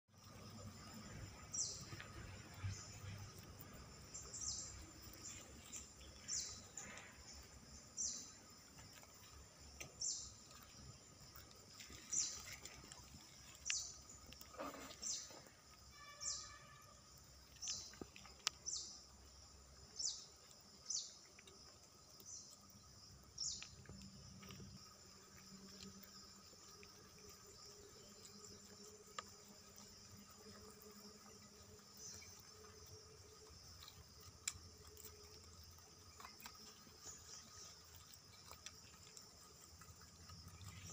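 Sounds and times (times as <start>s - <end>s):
bird chirping: 1.4s - 8.5s, 16.0s - 16.8s.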